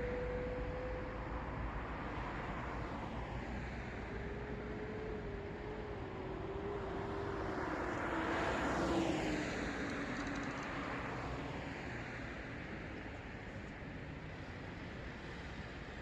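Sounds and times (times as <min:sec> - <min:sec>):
car passing by: 0:02.6 - 0:12.9.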